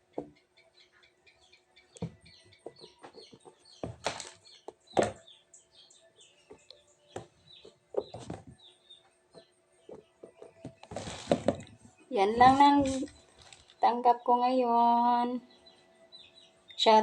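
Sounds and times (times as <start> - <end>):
small birds chirping: 0.0 - 17.0
plastic packaging rustling: 4.0 - 4.4, 10.6 - 11.8, 12.4 - 13.8.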